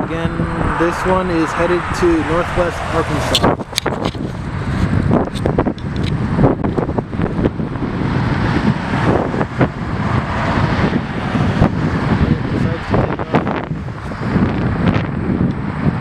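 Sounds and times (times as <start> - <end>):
engine rumble: 0.0 - 16.0
wind buffeting microphone: 0.0 - 16.0.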